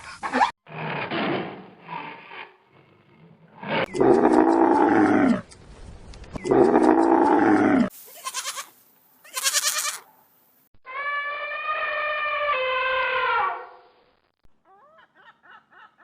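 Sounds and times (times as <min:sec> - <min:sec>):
animal long falling calls: 0:10.8 - 0:13.8.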